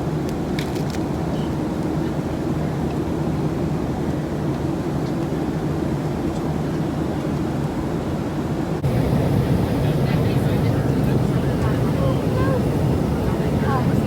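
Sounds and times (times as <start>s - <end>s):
jet airliner drone in cabin: 8.8s - 14.0s.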